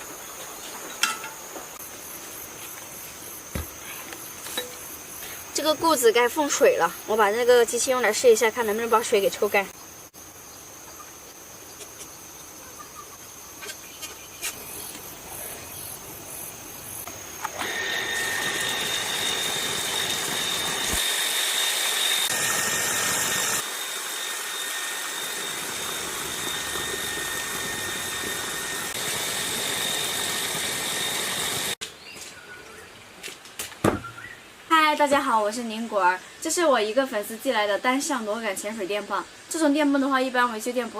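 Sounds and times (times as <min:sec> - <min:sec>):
water pump whining: 0:17.0 - 0:31.8.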